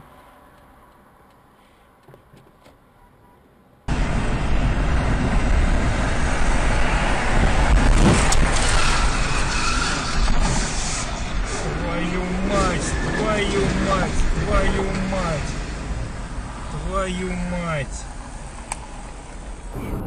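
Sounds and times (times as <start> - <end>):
car road and engine noise: 0.0 - 20.0
brief sharp sound: 19.7 - 20.0.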